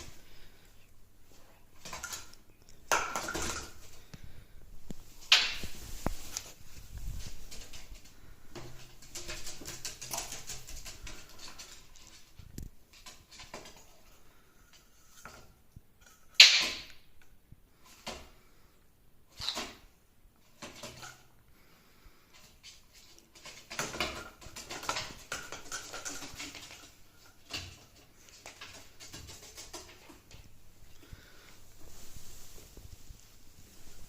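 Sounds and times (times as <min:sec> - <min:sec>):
parrot tapping and scratching: 0:01.7 - 0:04.3, 0:04.9 - 0:17.1, 0:20.4 - 0:21.3, 0:22.3 - 0:32.6.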